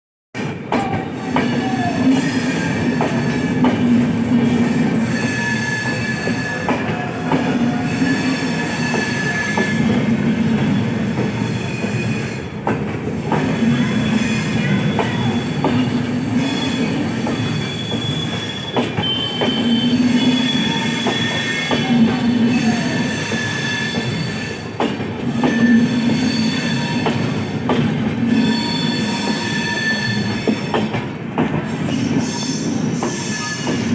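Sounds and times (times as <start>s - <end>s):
train running along track: 0.4s - 33.9s
wheel squeal: 5.0s - 6.8s, 13.6s - 21.9s, 22.5s - 27.5s, 28.2s - 30.8s.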